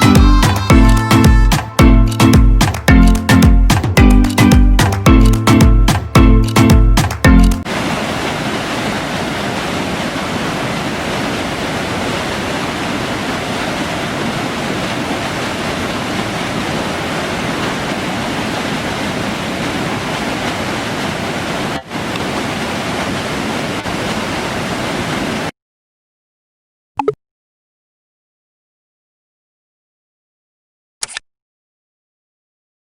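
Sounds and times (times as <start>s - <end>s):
waterfall rushing: 7.0s - 25.5s.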